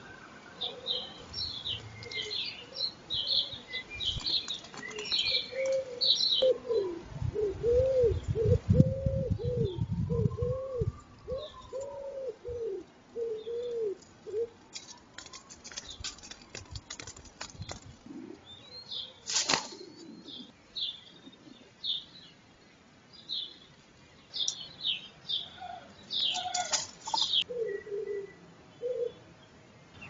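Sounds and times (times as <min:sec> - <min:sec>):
small songbirds chirping: 0:00.0 - 0:06.9, 0:12.6 - 0:30.0
wood pigeon cooing: 0:00.4 - 0:16.8, 0:17.6 - 0:20.5, 0:25.4 - 0:29.2
wing flaps: 0:19.3 - 0:19.8.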